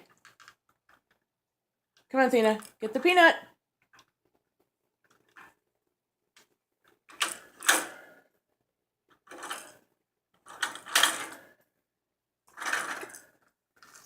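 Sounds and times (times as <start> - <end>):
plastic toy car rattling: 0.0 - 1.3, 3.8 - 5.7, 6.4 - 8.2, 9.1 - 11.7, 12.4 - 14.0.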